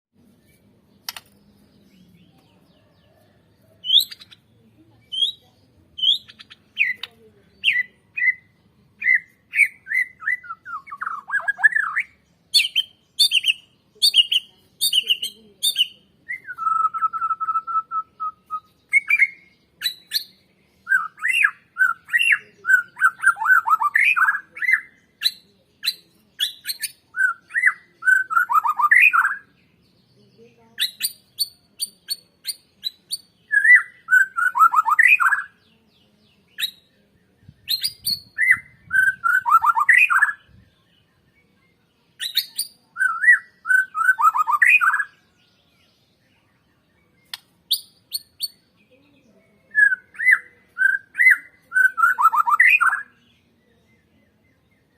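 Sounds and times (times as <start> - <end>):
shama singing whistled song: 7.7 - 29.5, 30.8 - 35.6, 36.6 - 40.6, 42.2 - 45.4, 49.7 - 53.2.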